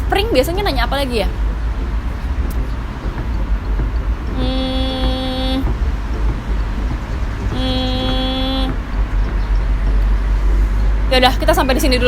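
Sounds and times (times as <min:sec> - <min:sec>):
low background rumble: 0:00.0 - 0:12.0
vehicle horn blasts: 0:04.3 - 0:05.7, 0:07.4 - 0:08.8.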